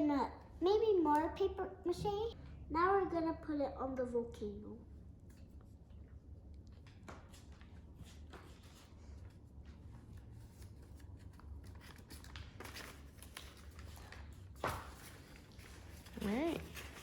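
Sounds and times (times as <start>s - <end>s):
newspaper rustling: 6.8s - 17.0s.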